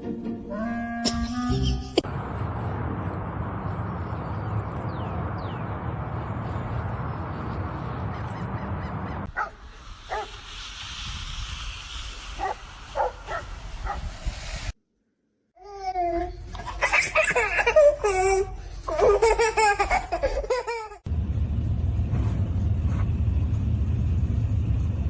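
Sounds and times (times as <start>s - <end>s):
steady rushing noise: 2.0s - 14.8s.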